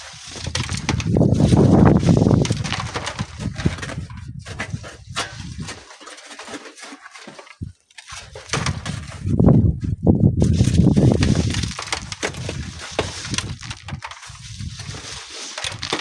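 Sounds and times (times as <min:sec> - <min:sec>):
strong wind buffeting microphone: 0:00.2 - 0:05.8, 0:08.6 - 0:15.2.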